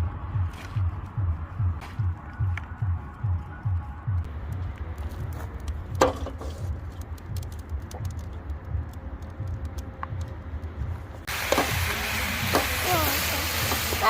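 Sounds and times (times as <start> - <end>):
fire crackling: 4.1 - 14.0
loud sizzling hiss: 11.3 - 14.0.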